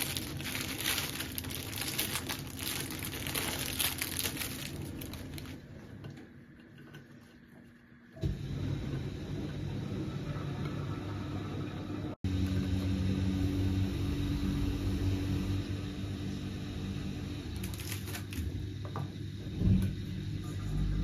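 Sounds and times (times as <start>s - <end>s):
low motor hum: 0.0s - 21.0s.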